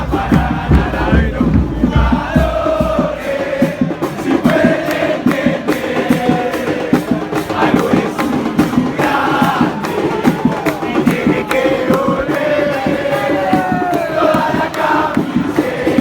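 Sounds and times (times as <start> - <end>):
crowd singing a chant: 0.0 - 16.0
drums beating: 0.0 - 16.0.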